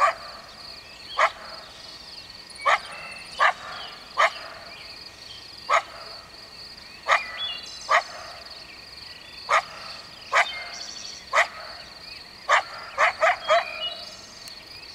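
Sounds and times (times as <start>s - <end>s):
coyote barking: 0.0s - 0.6s, 1.2s - 1.8s, 2.6s - 4.8s, 5.7s - 6.3s, 7.0s - 8.5s, 9.5s - 14.2s.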